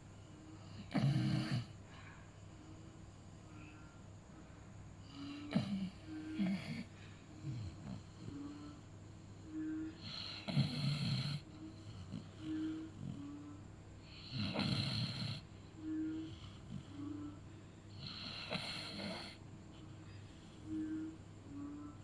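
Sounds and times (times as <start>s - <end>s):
dog snoring with rattling snores: 0.7s - 1.8s, 5.2s - 8.3s, 9.9s - 12.3s, 14.1s - 15.4s, 18.0s - 19.4s
whistling breaths: 15.7s - 22.0s.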